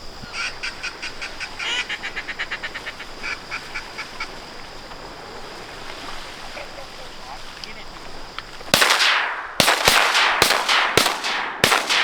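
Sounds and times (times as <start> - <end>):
insects buzzing: 0.0 - 12.0
duck quacks: 0.3 - 4.3.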